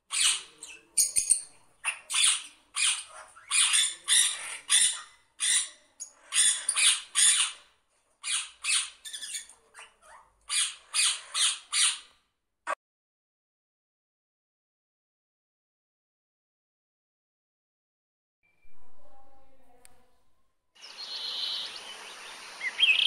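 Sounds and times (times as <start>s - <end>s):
bird squawking: 22.6s - 23.0s.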